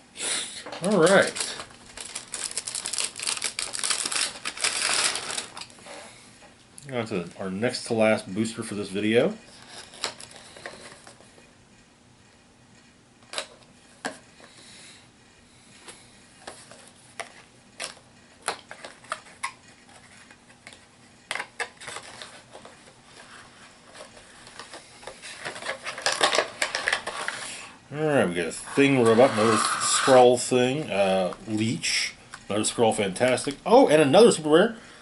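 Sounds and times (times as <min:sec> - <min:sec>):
packaging rustling: 0:00.8 - 0:05.8, 0:21.4 - 0:27.6.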